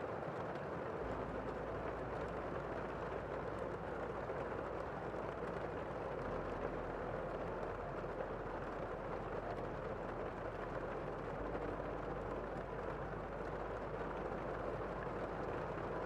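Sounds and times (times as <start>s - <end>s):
gentle rain falling: 0.0s - 16.0s.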